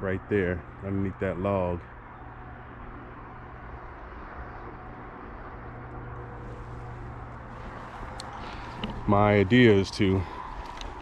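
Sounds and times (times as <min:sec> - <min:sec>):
constant low hum: 0:00.0 - 0:11.0
low rumble and hiss: 0:03.4 - 0:11.0.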